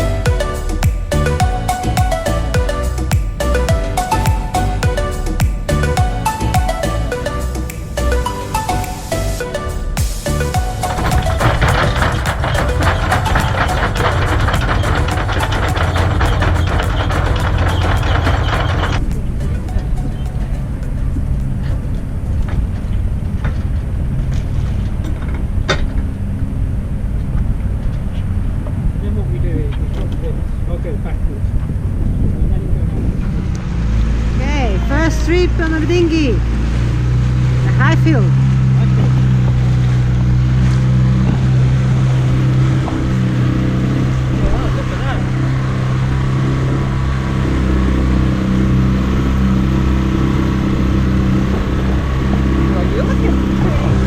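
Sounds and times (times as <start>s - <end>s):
engine running: 0.0s - 54.0s
clicks and knocks: 10.5s - 19.8s.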